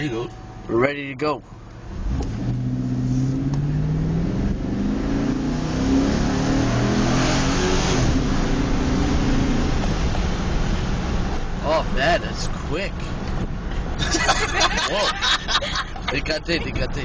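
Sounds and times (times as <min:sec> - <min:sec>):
wind and road noise: 0:00.0 - 0:17.0
car engine accelerating hard: 0:01.8 - 0:11.6.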